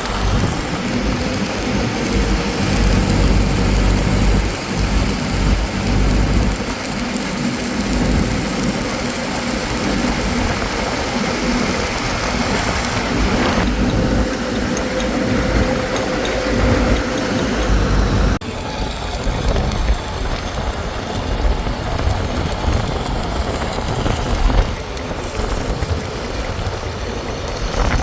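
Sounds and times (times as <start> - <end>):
loud hiss: 0.0 - 14.6
engine running: 0.0 - 28.0.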